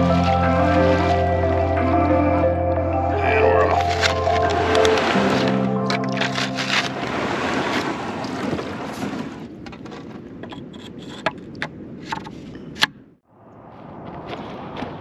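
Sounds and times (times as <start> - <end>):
wind: 0.0 - 15.0
water rushing around kayak: 3.2 - 10.8.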